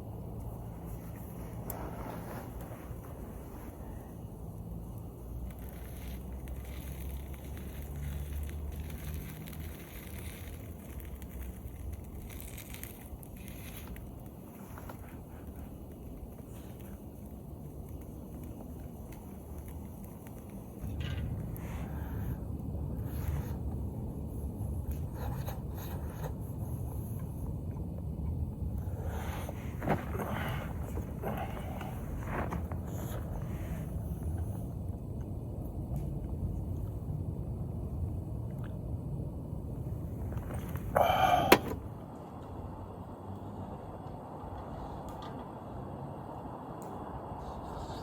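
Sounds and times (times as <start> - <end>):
steady low rumble: 0.0 - 48.0
scraping and rubbing: 0.4 - 27.4, 28.8 - 34.7
campfire crackling and popping: 4.5 - 21.6.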